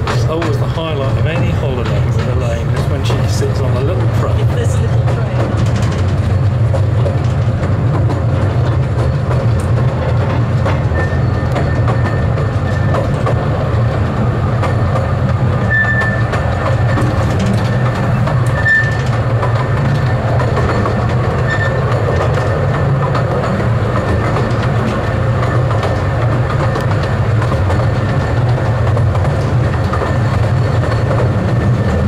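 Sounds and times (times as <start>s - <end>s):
train wheels rumbling: 0.0s - 32.0s
train wheel squeals: 10.6s - 13.2s, 15.6s - 22.5s.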